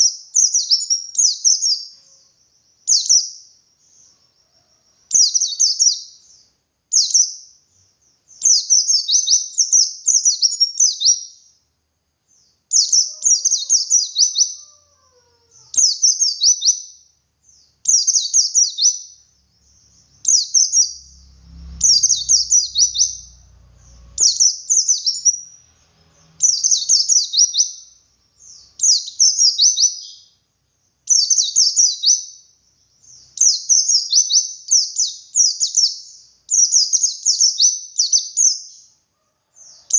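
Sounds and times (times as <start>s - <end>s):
bird singing high rapid notes: 17.6s - 38.8s.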